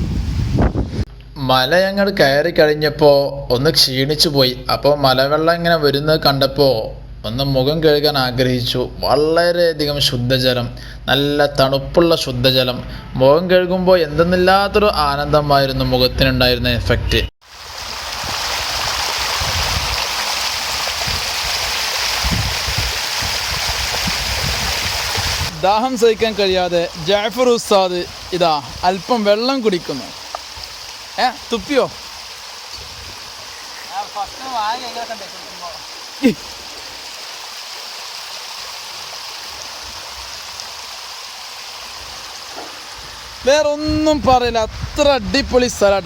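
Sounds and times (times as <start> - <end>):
stream rushing over rocks: 17.4 - 43.5.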